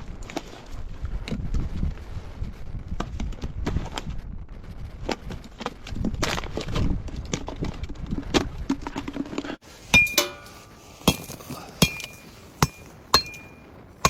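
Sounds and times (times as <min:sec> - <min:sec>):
wind buffeting microphone: 0:00.0 - 0:14.0
sharp metallic clinks: 0:09.9 - 0:13.8.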